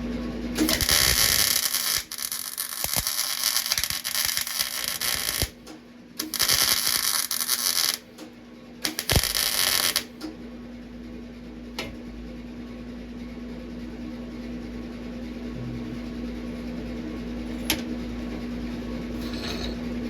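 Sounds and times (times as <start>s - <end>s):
welder low hum: 0.6s - 8.2s, 8.8s - 10.2s, 15.4s - 17.8s
welding arc crackling: 0.6s - 8.2s, 8.8s - 10.2s.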